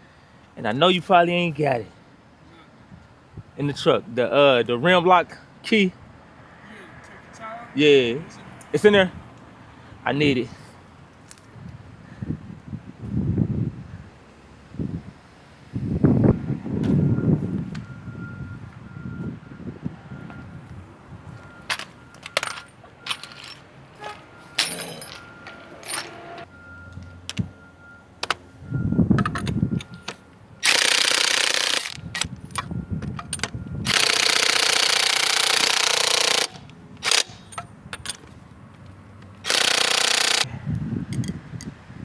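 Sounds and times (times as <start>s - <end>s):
metal tools clicking and clanking: 21.6s - 27.5s, 29.1s - 40.5s, 41.1s - 41.4s
impact wrench: 21.7s - 26.4s, 29.2s - 37.7s, 39.4s - 40.5s.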